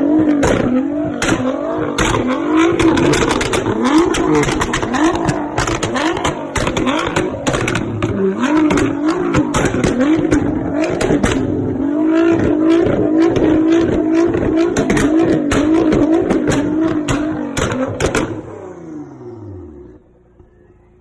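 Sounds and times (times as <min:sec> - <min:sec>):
exhaust pops and crackles: 0:00.0 - 0:18.5
car engine revving: 0:00.0 - 0:21.0.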